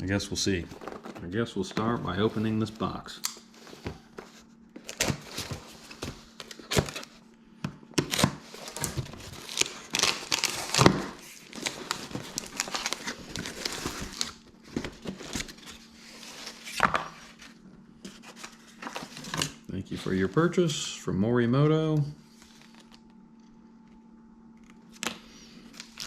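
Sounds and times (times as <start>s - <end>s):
cardboard box tearing: 8.0s - 14.4s
packing material crumpling: 8.0s - 16.8s.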